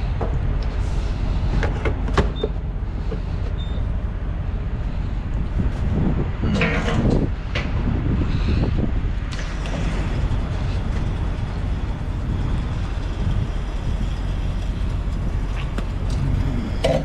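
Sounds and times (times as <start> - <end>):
clicks and clanks: 6.4 - 7.8
diesel truck engine idling: 7.8 - 17.0.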